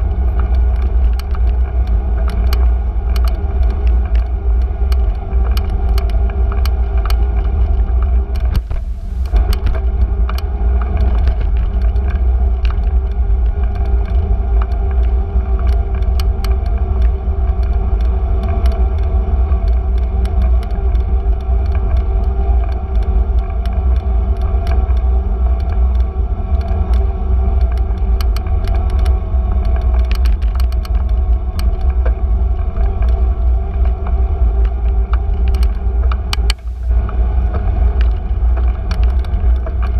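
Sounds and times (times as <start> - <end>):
bicycle clicks and rattles: 0.0 - 39.9
wind and road rumble: 0.0 - 39.9
tyres humming: 8.4 - 9.5.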